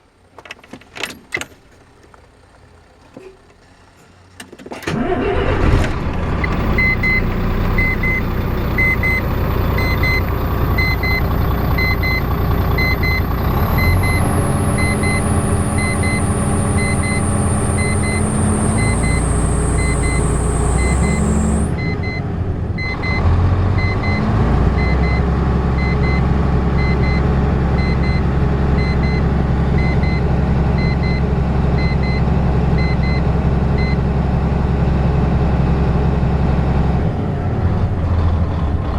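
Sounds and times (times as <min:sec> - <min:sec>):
diesel truck engine running: 0:00.0 - 0:38.9
short electronic beep: 0:06.7 - 0:22.2.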